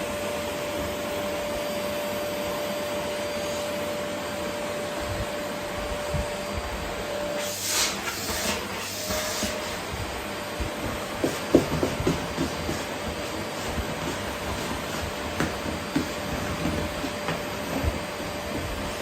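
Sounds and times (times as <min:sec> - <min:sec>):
vacuum cleaner running: 0:00.0 - 0:19.0
vacuum cleaner whine: 0:00.0 - 0:19.0
nozzle knocking on floor: 0:10.6 - 0:14.0.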